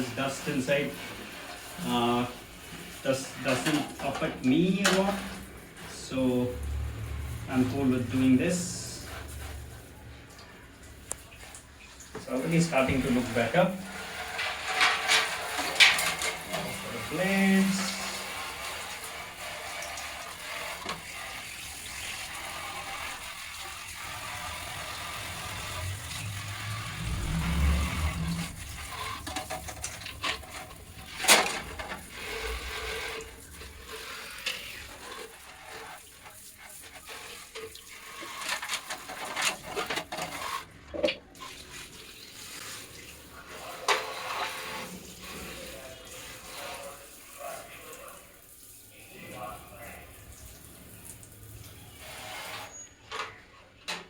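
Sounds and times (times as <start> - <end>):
water spraying onto plastic: 0.0 - 40.7, 41.4 - 52.8.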